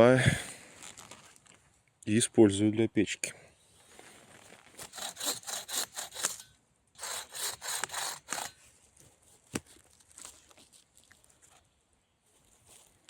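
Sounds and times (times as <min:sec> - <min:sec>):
hand saw cutting wood: 0:04.8 - 0:08.6.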